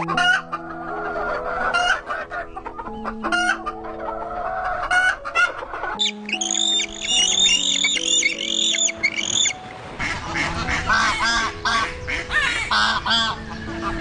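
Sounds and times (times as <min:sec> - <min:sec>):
chickens clucking: 0:00.0 - 0:14.0
simple background tune: 0:00.0 - 0:14.0
high-pitched bird calls: 0:06.0 - 0:09.7.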